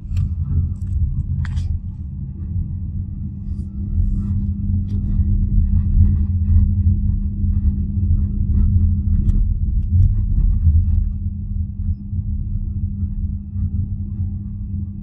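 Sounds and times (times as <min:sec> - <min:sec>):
road rumble: 0:00.0 - 0:05.0.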